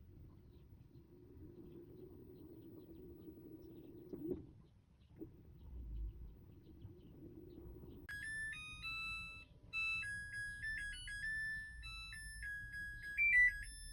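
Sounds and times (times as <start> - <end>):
electronic beeper melody: 8.1 - 13.9.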